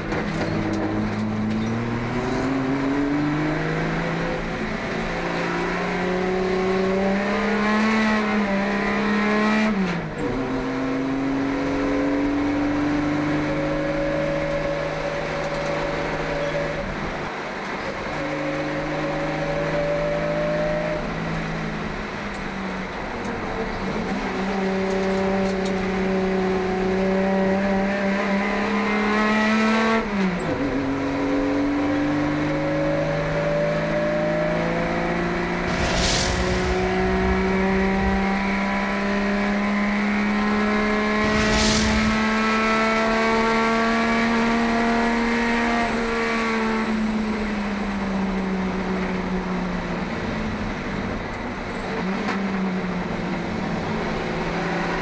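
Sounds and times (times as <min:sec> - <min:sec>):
race car engine at full throttle: 0:00.0 - 0:55.0
brief whooshes: 0:35.3 - 0:39.6, 0:40.8 - 0:43.6.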